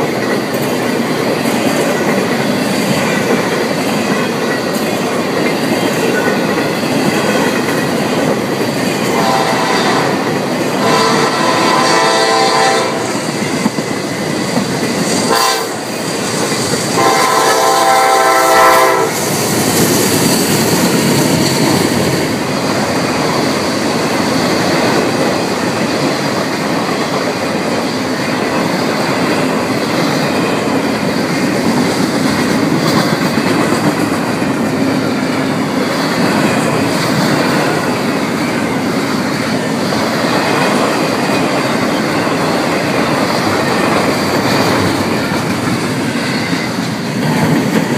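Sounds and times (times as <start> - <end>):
freight train wheels rumbling: 0.0 - 47.9
locomotive horn: 9.1 - 13.2, 15.3 - 15.9, 17.0 - 19.2.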